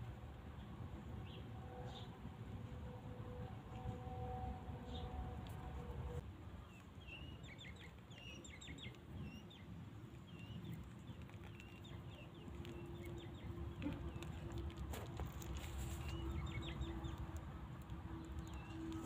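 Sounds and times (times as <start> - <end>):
birds chirping: 6.6 - 14.6, 15.6 - 19.0.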